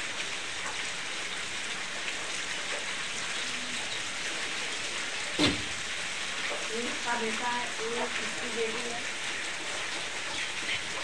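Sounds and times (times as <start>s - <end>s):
steady rain hiss: 0.0s - 11.0s
sharp knock: 5.4s - 5.7s.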